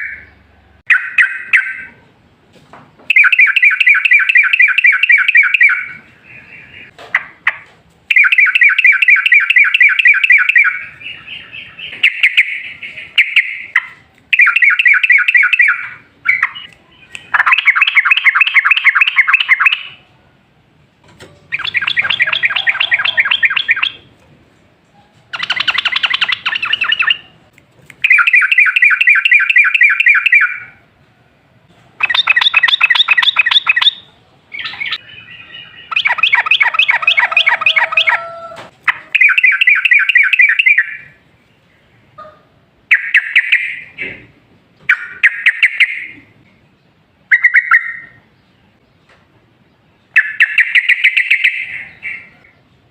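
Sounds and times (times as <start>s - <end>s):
bulbul singing rolling phrases: 0.0s - 2.4s, 3.0s - 31.0s, 31.9s - 42.2s, 42.8s - 52.9s.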